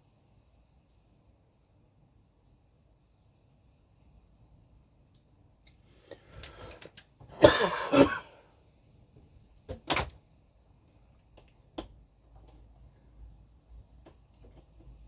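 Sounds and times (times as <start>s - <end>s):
clicks and rustles of parts: 14.0s - 15.0s.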